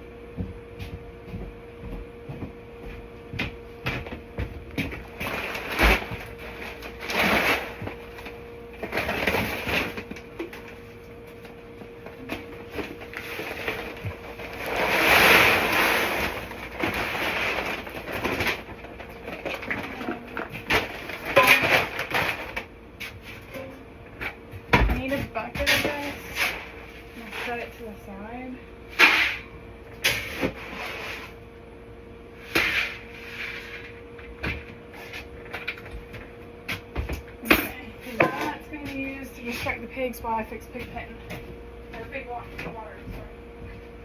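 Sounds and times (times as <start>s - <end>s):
bags rustling: 4.9s - 10.8s, 12.2s - 22.7s
grain feed pouring into bucket: 14.6s - 16.4s.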